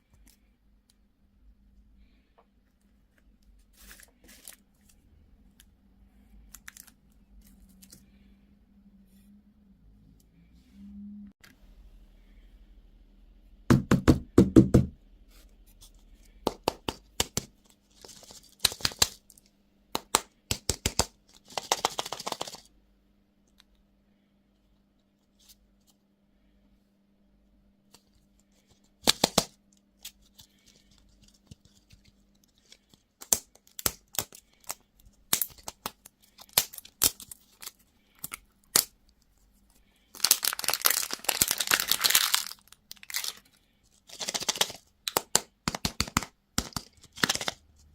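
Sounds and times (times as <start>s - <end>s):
wrapper crinkling and tearing: 29.1s - 38.9s, 40.1s - 47.6s.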